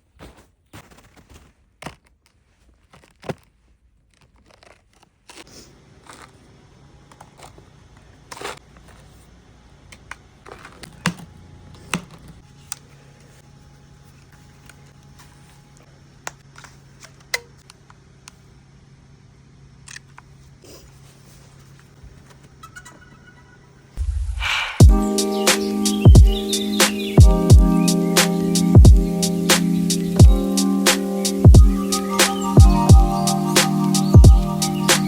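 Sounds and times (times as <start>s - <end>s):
low rumble: 24.0s - 25.0s
steady low hum: 24.0s - 35.0s.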